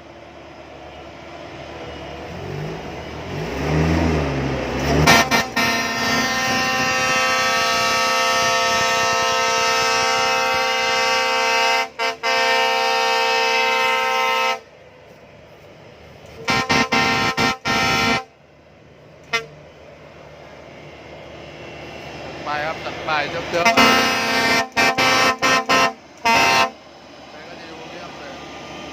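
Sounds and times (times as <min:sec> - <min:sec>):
harvester horn blasts and toots: 0:04.8 - 0:14.7, 0:16.4 - 0:18.4, 0:19.3 - 0:19.6, 0:23.5 - 0:26.8.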